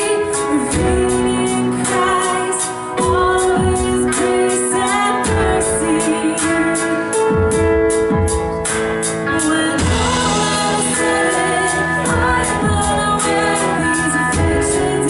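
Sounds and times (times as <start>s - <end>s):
person singing: 0.0s - 8.3s, 9.1s - 15.0s
worship band playing: 0.0s - 15.0s
steady drum beat: 0.4s - 15.0s.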